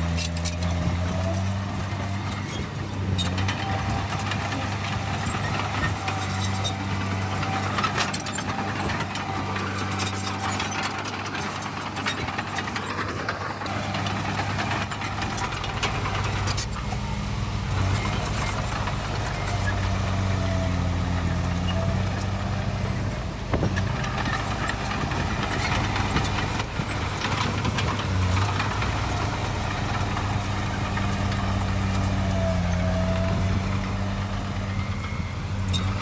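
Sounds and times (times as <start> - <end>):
diesel machinery engine hum: 0.0 - 36.0
clicks and clanks: 0.1 - 17.0.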